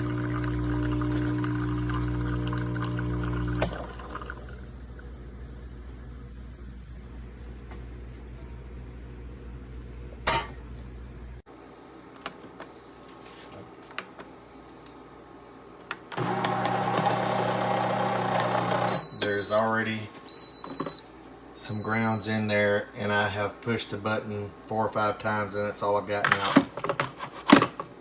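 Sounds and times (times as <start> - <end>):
bean grinder motor running: 0.0 - 4.5, 16.2 - 19.0
low steady hum: 0.0 - 12.2.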